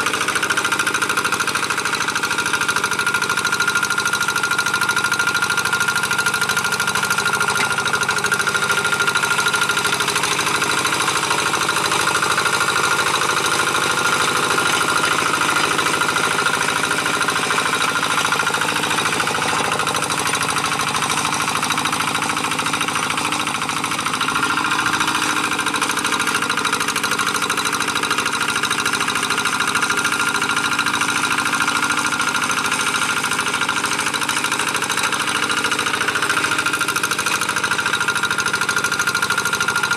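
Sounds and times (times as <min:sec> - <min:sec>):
diesel tractor engine knocking: 0:00.0 - 0:39.9
steady engine whine: 0:07.0 - 0:27.5.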